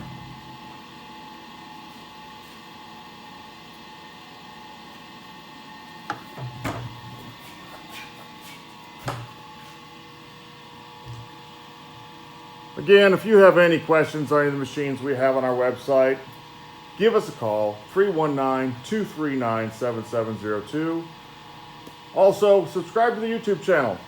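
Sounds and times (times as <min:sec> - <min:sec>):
machine hum: 0:00.0 - 0:07.4.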